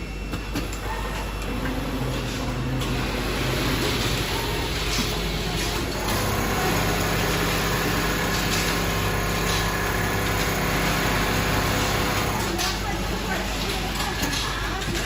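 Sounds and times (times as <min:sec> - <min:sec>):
sewing machine motor hum: 0:01.5 - 0:12.5.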